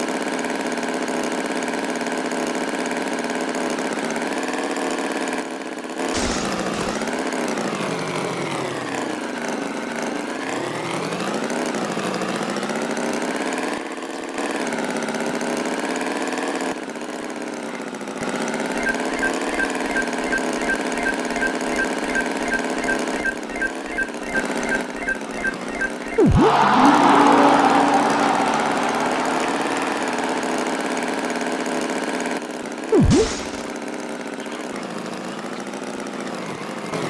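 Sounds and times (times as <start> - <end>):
cartoon tractor engine revving: 6.1 - 9.7, 18.4 - 32.2, 32.9 - 33.8
beat of clicks and low thumps: 18.8 - 27.0, 33.0 - 33.7.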